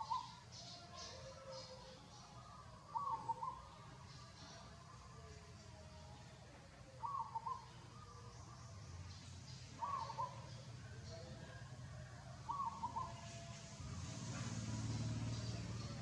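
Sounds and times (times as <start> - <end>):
bird calling: 0.0 - 4.7, 6.9 - 8.5, 9.5 - 11.6, 12.5 - 13.6.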